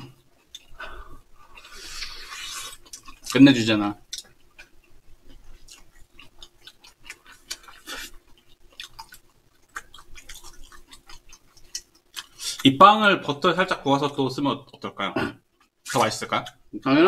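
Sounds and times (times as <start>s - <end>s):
people chewing: 0.0s - 3.4s, 4.1s - 12.6s.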